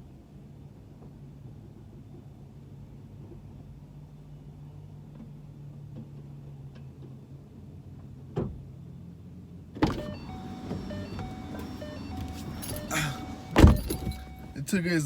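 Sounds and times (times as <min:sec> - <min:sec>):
outside noise: 0:01.0 - 0:15.0
car door thud: 0:09.8 - 0:14.6
faint short beeps: 0:09.9 - 0:14.6.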